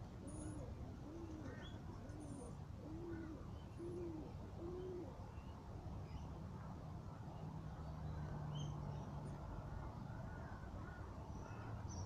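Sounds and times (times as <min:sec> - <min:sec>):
bird low hooting call: 0:00.2 - 0:05.2.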